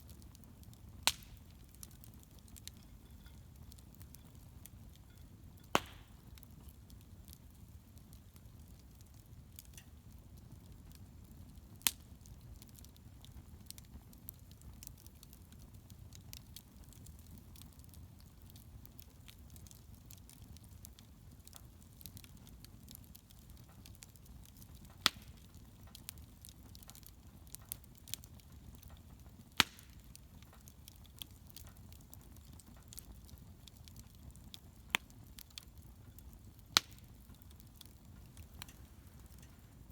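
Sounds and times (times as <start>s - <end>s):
bonfire crackling: 0.0s - 39.9s
loud sharp pops: 5.8s - 6.2s, 29.6s - 30.0s.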